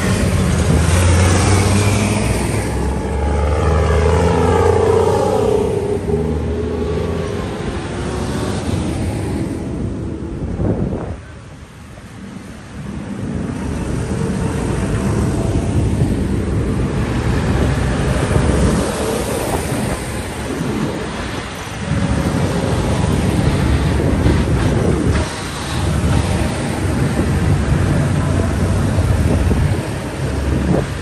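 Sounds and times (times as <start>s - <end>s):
tractor engines running: 0.0s - 31.0s
wind on microphone: 0.0s - 31.0s.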